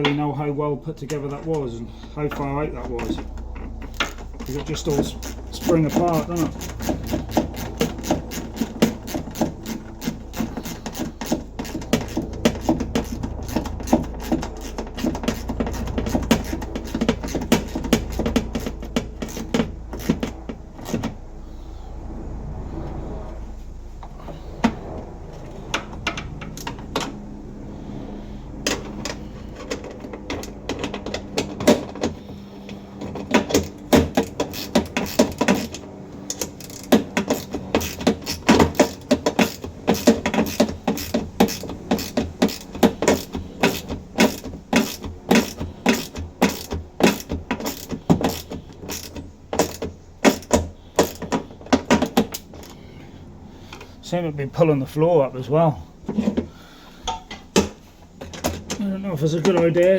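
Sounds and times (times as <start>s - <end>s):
low steady hum: 0.0s - 59.9s
ratchet spanner clicking: 1.1s - 21.1s, 28.6s - 52.8s.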